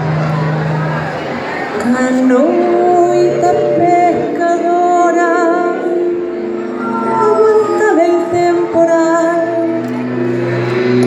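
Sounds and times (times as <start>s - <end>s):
woman singing: 1.8s - 9.9s.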